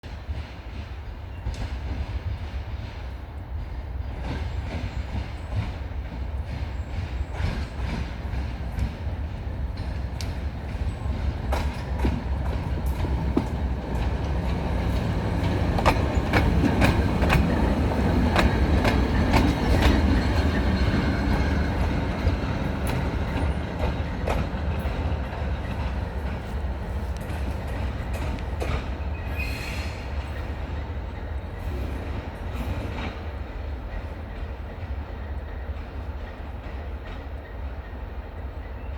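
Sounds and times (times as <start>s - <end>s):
train rumbling on rails: 0.0s - 38.9s
faint wheel squeal: 29.1s - 30.1s.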